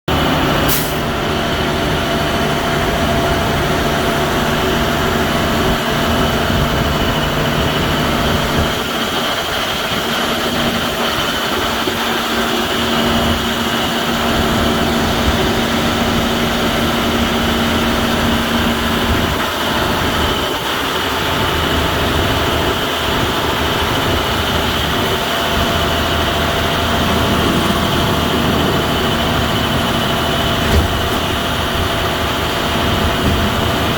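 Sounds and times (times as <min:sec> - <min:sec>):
truck engine hum: 0:00.1 - 0:33.9.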